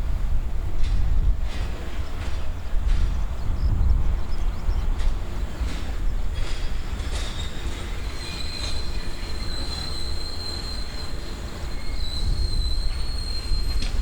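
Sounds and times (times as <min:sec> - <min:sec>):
train low rumble: 0:00.0 - 0:14.0
train wheels clicking over rail joints: 0:00.0 - 0:14.0
high wheel squeal: 0:06.4 - 0:14.0.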